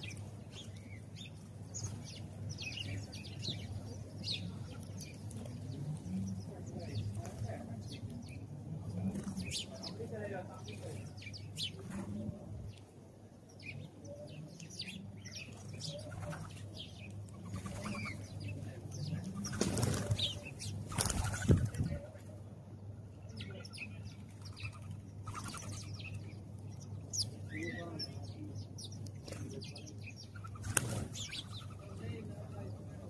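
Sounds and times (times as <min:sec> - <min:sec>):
sparrows chirping: 0:00.0 - 0:33.0
bird wings flapping: 0:19.4 - 0:20.3, 0:20.9 - 0:21.8, 0:30.5 - 0:31.2.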